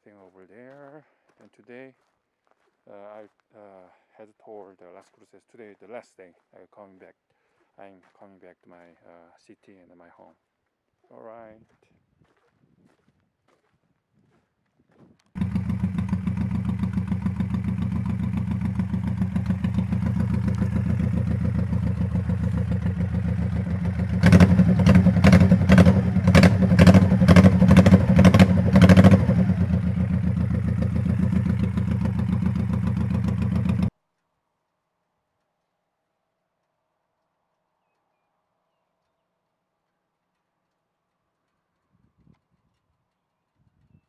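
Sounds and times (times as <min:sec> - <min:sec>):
motorcycle engine idling: 0:15.4 - 0:33.9.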